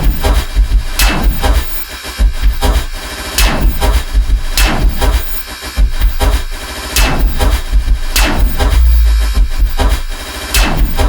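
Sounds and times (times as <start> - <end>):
pulsing sub-bass hits: 7.0 - 11.0
harsh noise texture: 8.2 - 10.0
noise sweep falling in pitch: 8.8 - 9.6.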